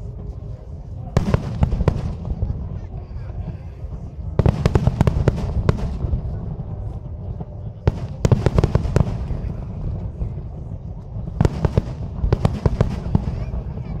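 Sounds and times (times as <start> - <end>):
steady low rumble: 0.0 - 14.0
firework bangs: 1.2 - 2.8, 4.4 - 6.6, 7.9 - 10.3, 11.3 - 14.0.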